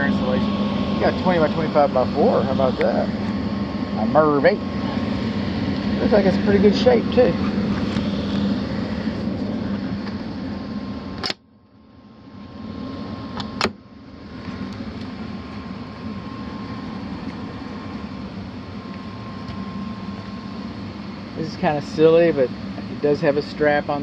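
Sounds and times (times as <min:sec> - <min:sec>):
fan hum with faint whine: 0:00.0 - 0:24.0
sharp click: 0:11.2 - 0:11.4.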